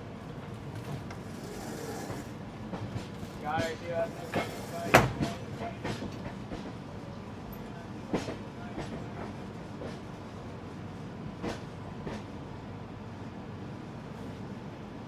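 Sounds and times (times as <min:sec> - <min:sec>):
train rumbling on track: 0:00.0 - 0:15.0
wheels clacking over rail joints: 0:00.4 - 0:06.8.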